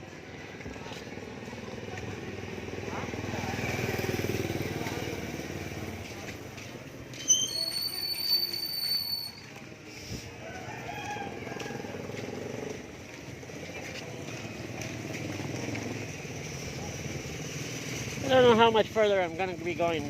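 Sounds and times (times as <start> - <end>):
high steady whistle: 7.2 - 9.6
rooster crowing: 10.4 - 12.2.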